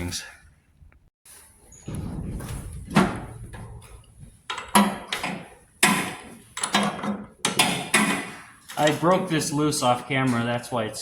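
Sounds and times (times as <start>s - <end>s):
hand tools clanking on metal: 4.5s - 9.3s.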